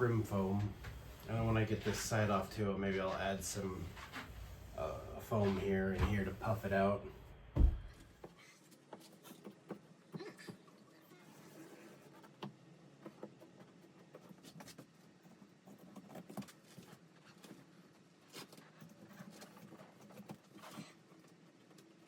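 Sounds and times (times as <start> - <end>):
upholstery rustling: 0.0 - 8.1.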